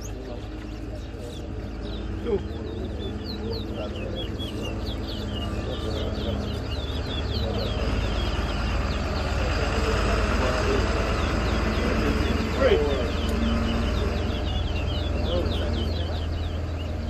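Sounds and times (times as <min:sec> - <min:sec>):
finch singing high whistled notes: 0:00.0 - 0:09.4.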